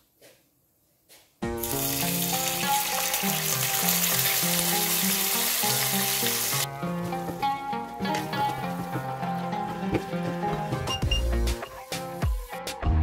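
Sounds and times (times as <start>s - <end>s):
background music: 1.4s - 13.0s
hot oil sizzling in a frying pan: 1.6s - 6.7s.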